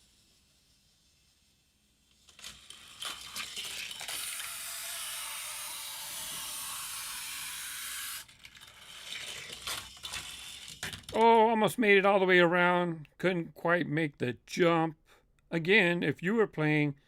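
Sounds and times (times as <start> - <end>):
toy car wheels whirring: 0.0 - 11.3
plastic clacks and knocks: 9.5 - 11.4.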